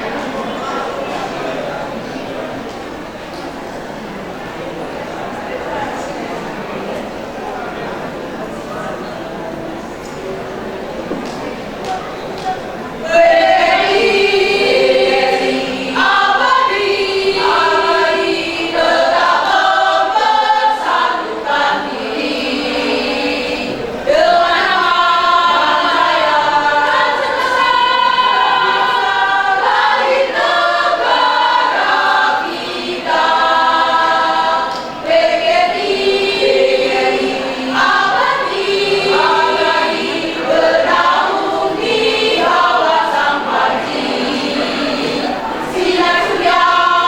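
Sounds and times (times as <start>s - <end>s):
choir singing held notes: 11.9s - 47.0s.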